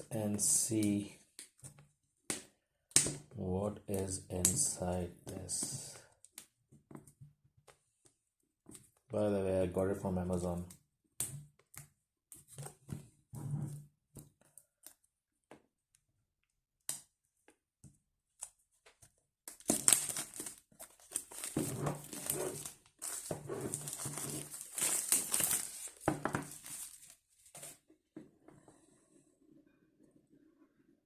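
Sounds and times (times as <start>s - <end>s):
packaging crinkling and rustling: 19.5s - 27.8s.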